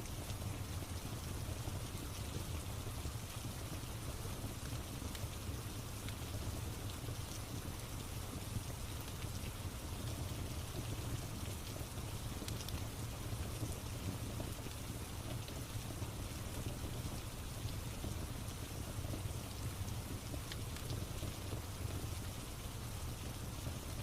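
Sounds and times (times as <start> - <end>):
steady rain: 0.0 - 24.0
fireplace crackles: 8.8 - 23.8.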